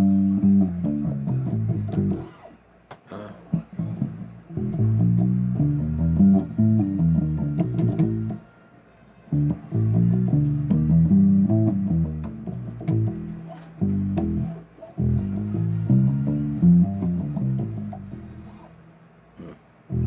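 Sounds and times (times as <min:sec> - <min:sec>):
bass guitar riff: 0:00.0 - 0:02.4, 0:03.5 - 0:08.4, 0:09.3 - 0:18.9
fret and string clicks: 0:09.4 - 0:19.0.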